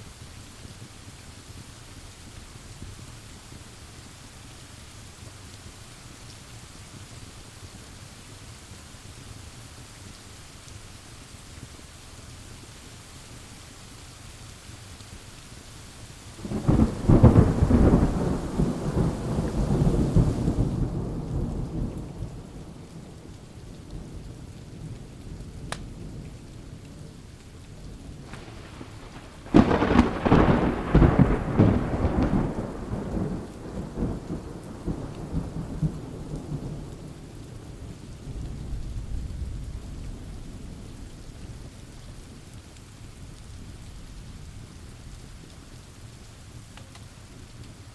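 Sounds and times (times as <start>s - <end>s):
steady rain: 0.0s - 47.9s
thunder cracking and rumbling: 16.4s - 26.5s, 28.1s - 41.6s.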